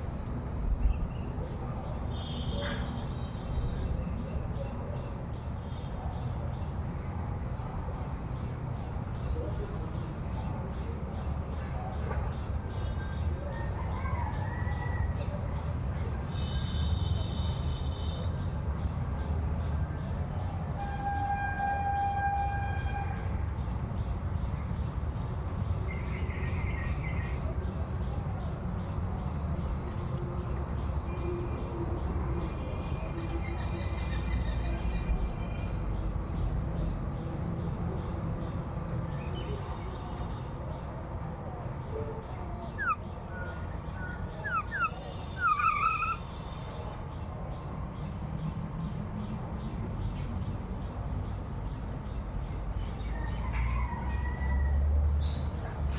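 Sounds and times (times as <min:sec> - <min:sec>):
high insect drone: 0:00.0 - 0:55.9
sharp bird chirps: 0:42.7 - 0:46.8, 0:55.2 - 0:55.6.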